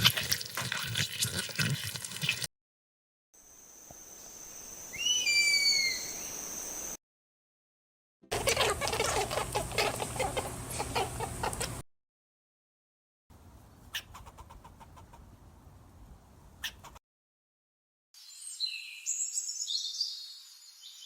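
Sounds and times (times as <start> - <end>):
chickens clucking: 8.3 - 11.8, 13.9 - 15.3.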